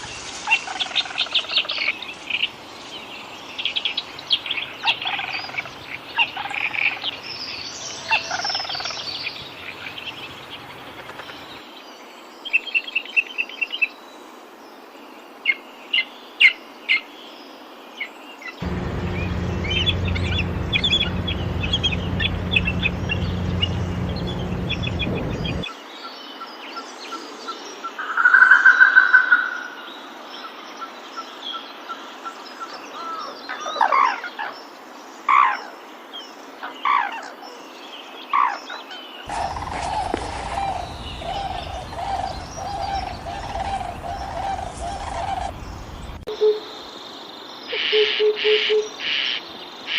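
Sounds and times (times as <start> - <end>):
forest birds chirping and trilling: 0.0 - 49.9
low steady hum: 18.6 - 25.6, 39.3 - 46.3.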